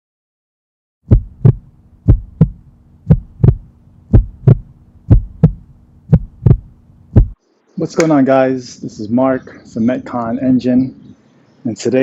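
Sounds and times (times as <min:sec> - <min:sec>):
heartbeat double thumps: 0:01.0 - 0:07.4
steady low hum: 0:01.0 - 0:07.7.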